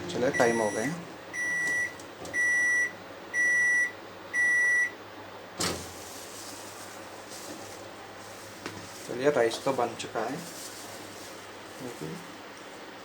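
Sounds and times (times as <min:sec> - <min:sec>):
microwave high beeps: 0:00.3 - 0:05.0.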